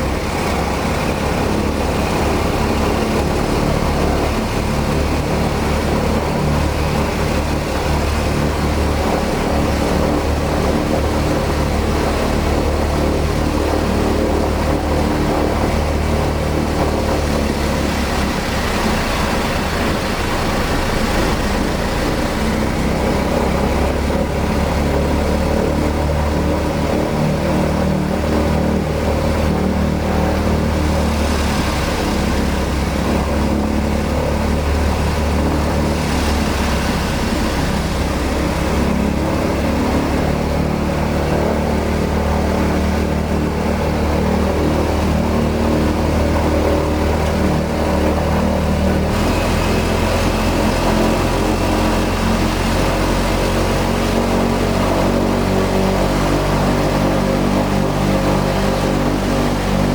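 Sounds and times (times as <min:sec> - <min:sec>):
radial piston engine drone: 0:28.6 - 0:59.9.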